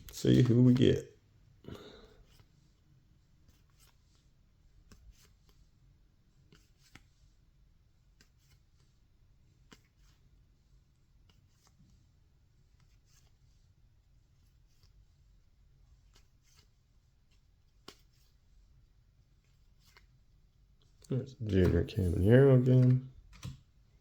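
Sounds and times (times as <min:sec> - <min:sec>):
trading cards flipped by hand: 0:00.2 - 0:00.9, 0:03.4 - 0:04.2, 0:04.8 - 0:05.6, 0:06.5 - 0:07.2, 0:08.1 - 0:08.9, 0:09.6 - 0:10.2, 0:11.2 - 0:11.8, 0:12.7 - 0:13.5, 0:16.0 - 0:18.4, 0:19.4 - 0:20.2, 0:21.5 - 0:23.8.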